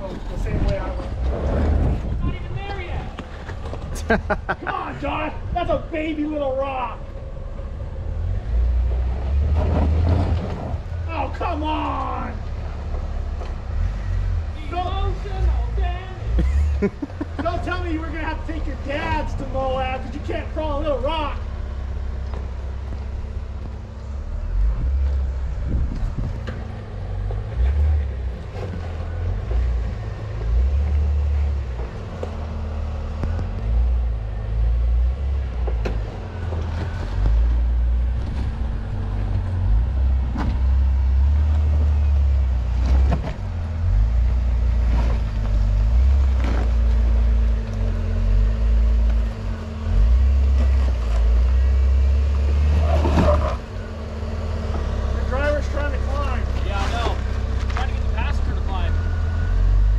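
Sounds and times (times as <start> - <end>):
wind rumble on microphone: 0.0 - 4.6, 24.5 - 27.3
car engine running slowly: 0.0 - 59.9.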